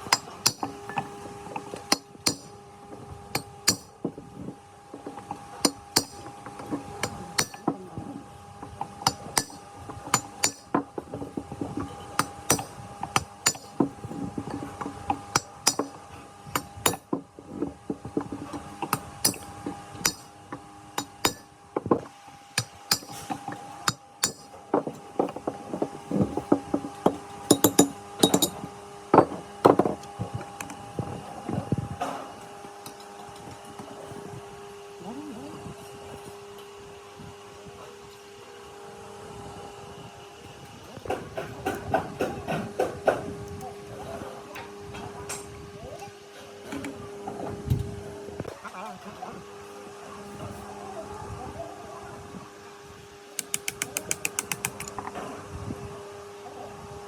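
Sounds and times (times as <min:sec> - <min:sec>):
hand tools tapping on metal: 0:00.0 - 0:02.6, 0:03.3 - 0:04.2, 0:04.9 - 0:07.8, 0:08.7 - 0:17.2, 0:18.3 - 0:20.3, 0:21.0 - 0:21.5, 0:22.6 - 0:25.0, 0:26.8 - 0:28.6, 0:53.4 - 0:55.0
steady hum: 0:00.0 - 0:26.5.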